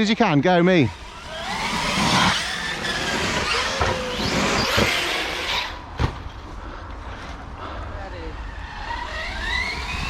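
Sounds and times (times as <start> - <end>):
tyres on rough ground: 0.7 - 10.0
electric motor whine: 0.9 - 5.8, 8.8 - 10.0.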